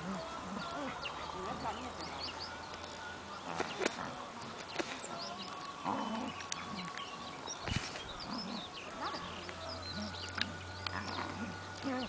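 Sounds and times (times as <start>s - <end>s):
birds chirping: 0.0s - 12.0s
low animal call: 7.7s - 12.0s.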